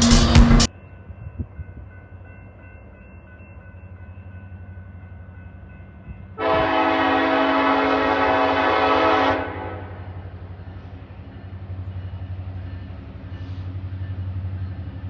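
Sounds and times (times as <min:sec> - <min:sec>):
diesel locomotive rumbling: 0:00.0 - 0:15.0
locomotive air horn: 0:06.4 - 0:10.1.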